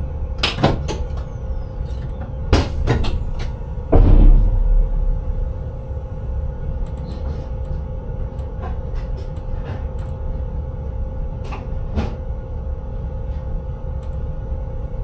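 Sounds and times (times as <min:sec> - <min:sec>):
train rumble and hum: 0:00.0 - 0:15.0.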